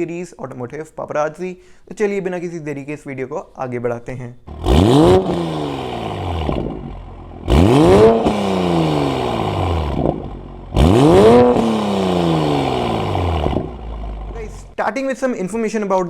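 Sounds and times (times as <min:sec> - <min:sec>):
vehicle engine revving: 0:04.5 - 0:14.8.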